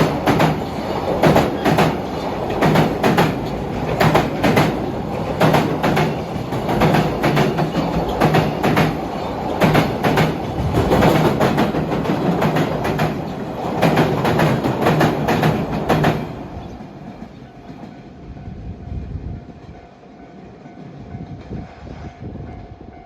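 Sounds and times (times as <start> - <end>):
train wheels clacking: 0.0 - 18.4.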